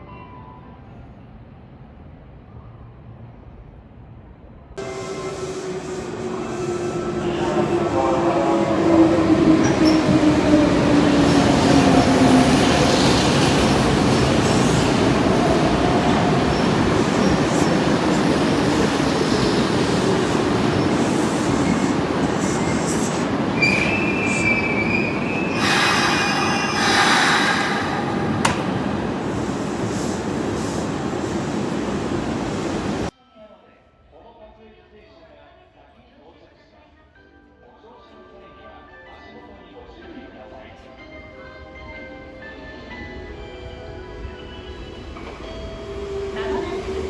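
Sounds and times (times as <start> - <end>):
train wheels rushing on rail: 4.8 - 33.1
wavering wheel squeal: 22.6 - 28.2.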